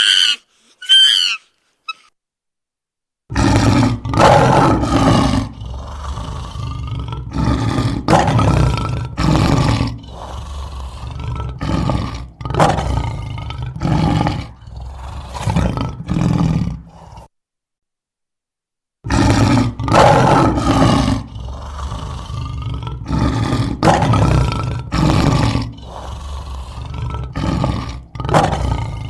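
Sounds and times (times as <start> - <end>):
tiger roaring and growling: 3.3 - 17.3, 19.0 - 29.0.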